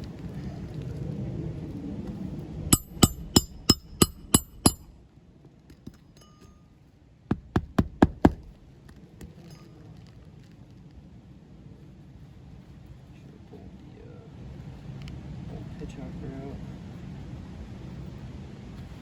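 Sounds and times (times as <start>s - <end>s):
hammer striking roofing nails: 2.8s - 4.9s, 7.3s - 8.7s.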